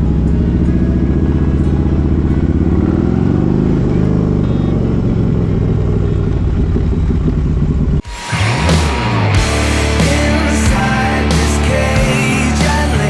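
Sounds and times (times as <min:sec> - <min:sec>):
motorcycle engine running: 0:00.0 - 0:13.0
rock music: 0:08.1 - 0:13.0.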